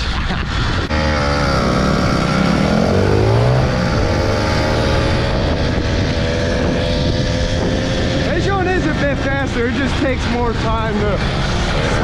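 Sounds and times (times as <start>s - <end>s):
small motorbike engine running: 0.9s - 8.3s.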